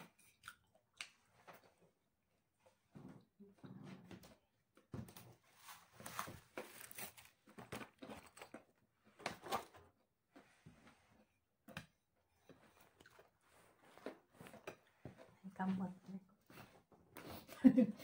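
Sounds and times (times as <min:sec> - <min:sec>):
chewing raw vegetables: 0:00.0 - 0:01.8.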